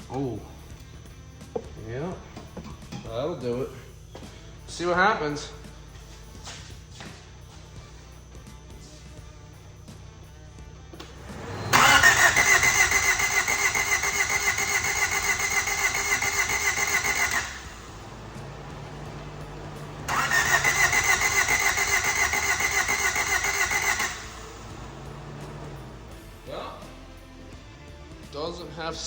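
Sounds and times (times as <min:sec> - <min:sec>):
car engine cranking on starter: 0:11.0 - 0:26.5.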